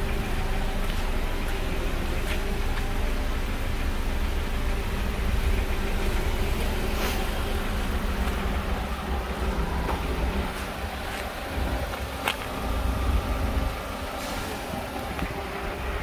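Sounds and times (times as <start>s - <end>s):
car engine idling: 0.0s - 16.0s
wind rumble on microphone: 9.9s - 13.9s.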